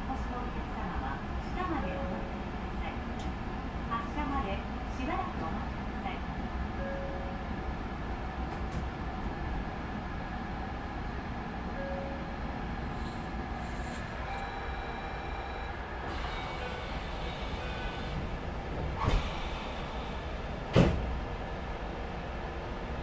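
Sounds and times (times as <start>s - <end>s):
train low hum: 0.0s - 23.0s.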